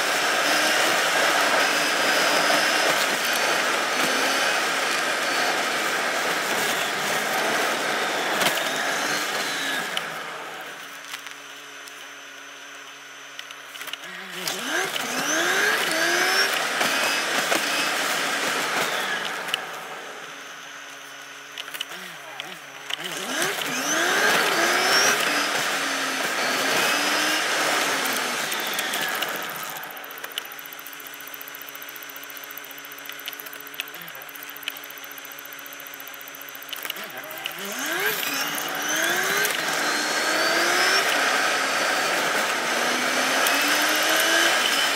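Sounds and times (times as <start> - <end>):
car engine accelerating: 21.9 - 30.2.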